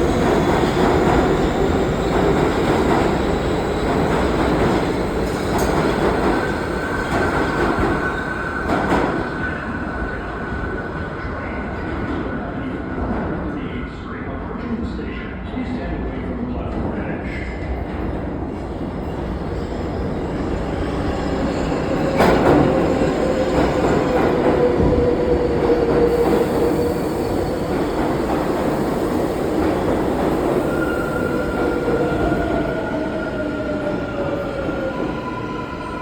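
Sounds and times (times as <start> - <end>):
train wheels rumbling on rails: 0.0 - 9.6, 17.7 - 36.0.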